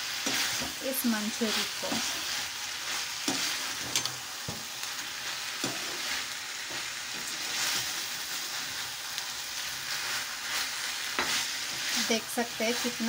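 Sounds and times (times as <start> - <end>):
food sizzling in a wok: 0.0 - 13.0
spatula scraping and knocking pan: 3.1 - 4.8, 5.6 - 7.9, 11.1 - 13.0.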